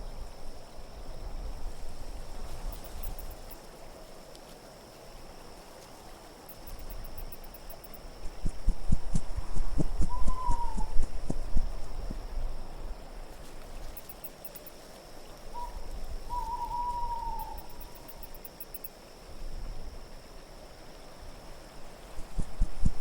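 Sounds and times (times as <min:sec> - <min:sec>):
low steady wind: 0:00.0 - 0:23.0
owl hooting: 0:10.0 - 0:11.4, 0:15.5 - 0:18.2
faint high tinkling: 0:13.8 - 0:14.8.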